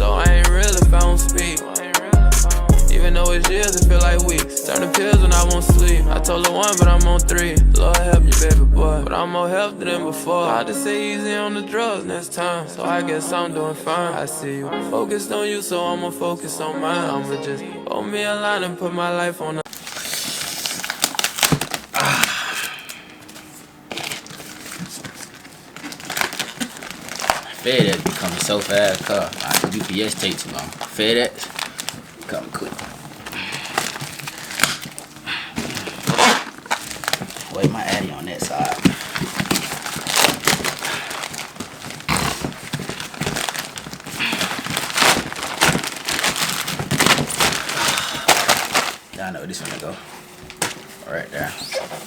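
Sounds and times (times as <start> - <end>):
packaging crinkling and rustling: 19.7 - 52.0.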